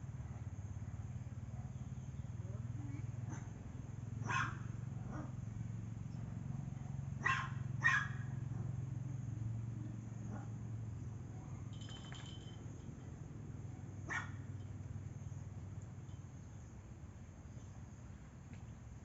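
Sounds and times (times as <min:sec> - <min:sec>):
dog barking: 0:03.3 - 0:03.5, 0:04.2 - 0:05.4, 0:06.8 - 0:08.8, 0:14.1 - 0:14.4.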